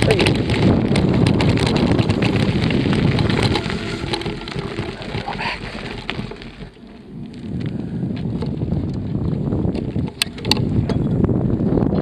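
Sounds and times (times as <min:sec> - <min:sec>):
wind rumbling on microphone: 0:00.0 - 0:12.0
brief higher-pitched sound: 0:01.8 - 0:07.5.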